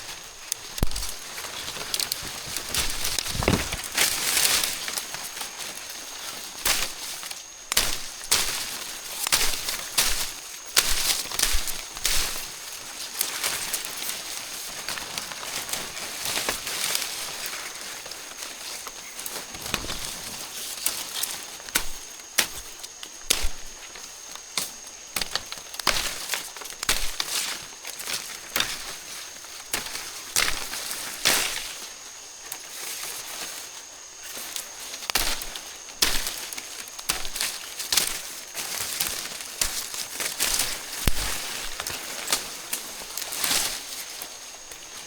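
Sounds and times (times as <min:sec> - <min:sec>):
crackling and snapping: 0:00.0 - 0:12.4, 0:24.4 - 0:29.0, 0:34.5 - 0:45.0.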